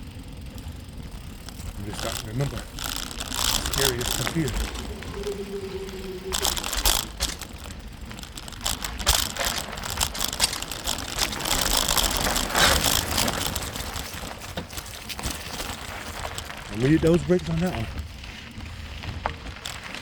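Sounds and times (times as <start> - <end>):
bicycle frame rattling: 0.0 - 20.0
tyre and wind noise: 0.0 - 20.0
sharp clicks and knocks: 6.3 - 16.7.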